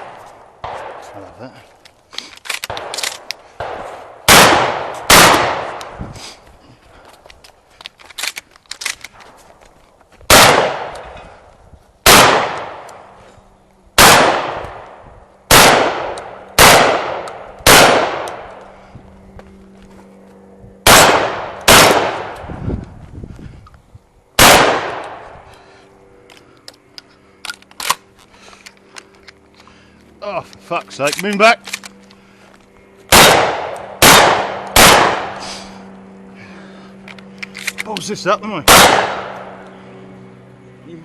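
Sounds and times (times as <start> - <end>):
shotgun shots: 0.0 - 1.2, 2.7 - 5.8, 10.3 - 11.0, 12.0 - 12.9, 14.0 - 18.5, 20.8 - 22.4, 24.4 - 25.2, 33.1 - 35.4, 38.6 - 39.6
gun handling clicks: 1.8 - 3.5, 7.2 - 9.9, 16.1 - 18.7, 26.2 - 29.8, 30.5 - 32.2, 37.0 - 39.8.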